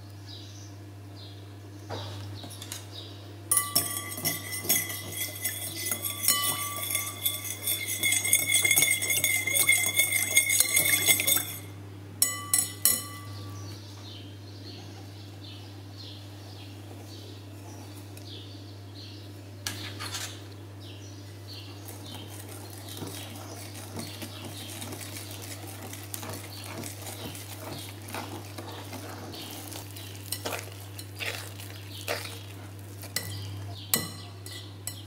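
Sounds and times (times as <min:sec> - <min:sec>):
whisk clinking against bowl: 0:03.5 - 0:13.4, 0:22.0 - 0:35.0.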